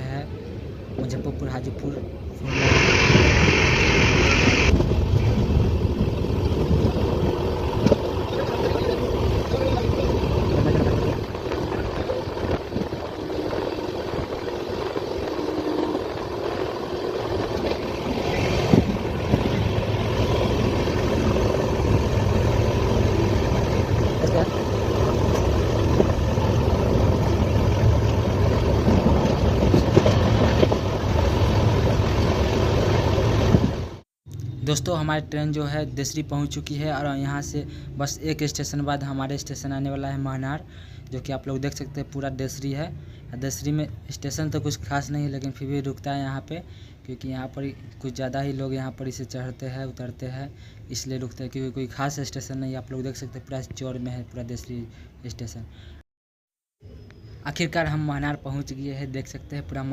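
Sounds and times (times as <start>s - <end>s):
passenger train running at speed: 2.4s - 34.0s.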